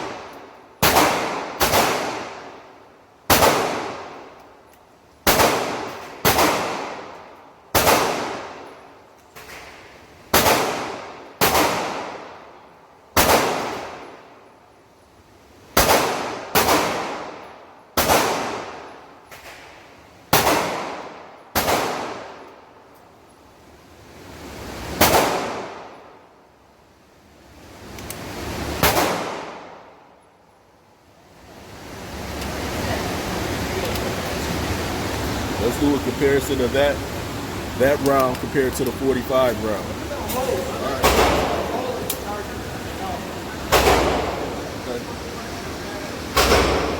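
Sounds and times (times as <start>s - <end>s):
gunshots with echo: 40.8s - 42.3s, 43.6s - 45.0s, 46.2s - 46.9s.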